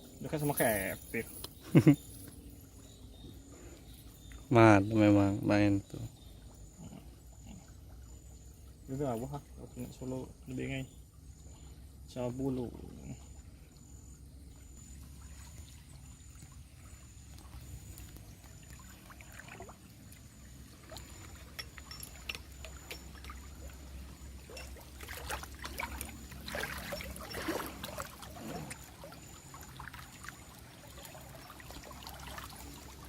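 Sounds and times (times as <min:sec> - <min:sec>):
river water splashing: 0:14.8 - 0:33.0.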